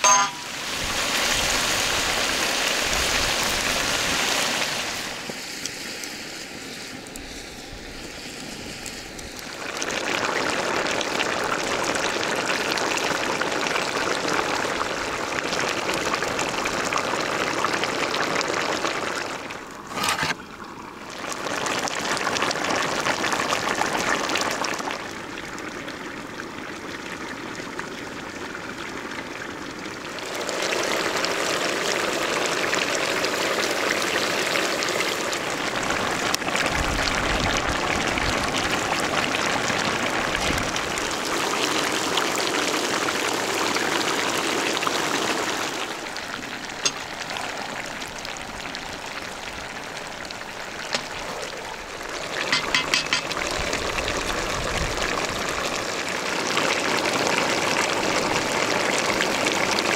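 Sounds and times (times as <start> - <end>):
meat sizzling in a pan: 50.1 - 54.6.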